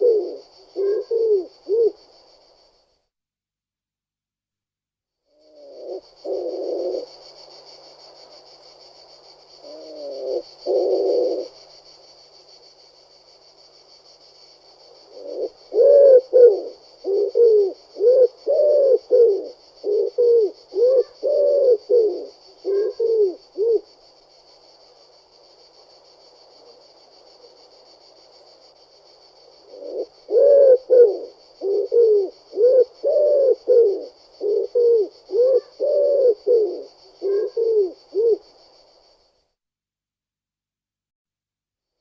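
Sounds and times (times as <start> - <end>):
pigeon cooing: 0.0 - 2.0, 5.4 - 7.1, 9.6 - 11.6, 15.1 - 23.9, 29.6 - 38.4.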